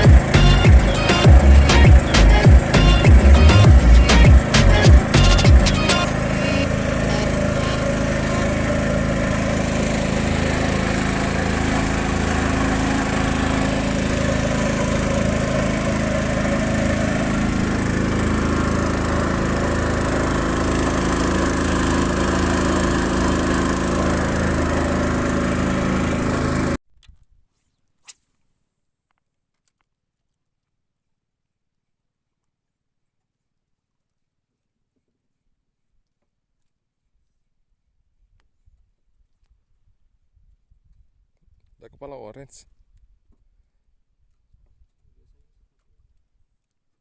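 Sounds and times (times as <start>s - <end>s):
small engine running: 0.0s - 26.8s.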